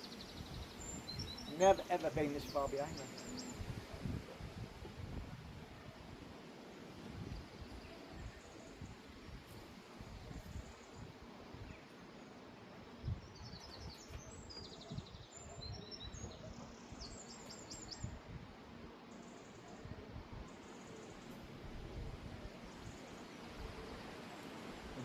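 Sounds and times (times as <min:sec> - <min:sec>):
small bird chirping: 0:00.0 - 0:03.8, 0:13.0 - 0:18.2
wind buffeting microphone: 0:00.1 - 0:11.8, 0:12.9 - 0:18.9, 0:21.4 - 0:24.1.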